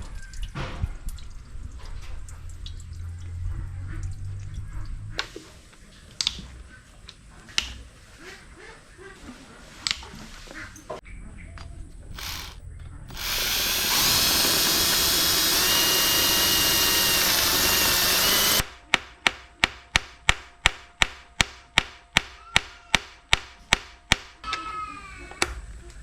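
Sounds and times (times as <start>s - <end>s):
power tool running: 12.2s - 18.6s.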